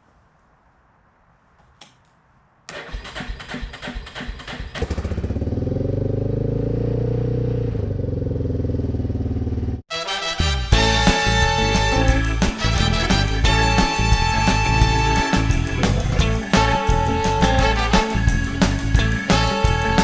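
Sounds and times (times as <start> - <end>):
engine starter cranking: 2.7 - 5.4
engine idling: 2.7 - 6.6.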